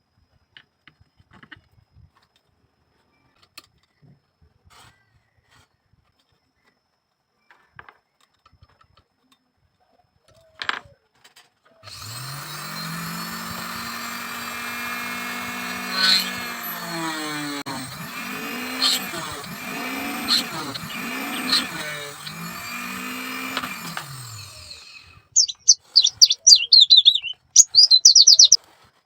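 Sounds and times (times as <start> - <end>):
electric power tool motor running: 11.9 - 28.6.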